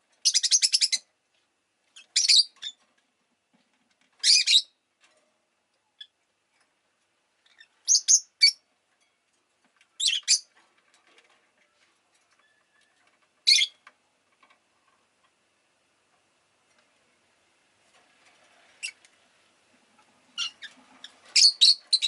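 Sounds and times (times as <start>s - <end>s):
lovebird chirping: 0.2s - 1.0s, 2.0s - 2.8s, 7.4s - 8.6s, 10.0s - 10.5s, 13.4s - 13.8s, 20.3s - 22.0s.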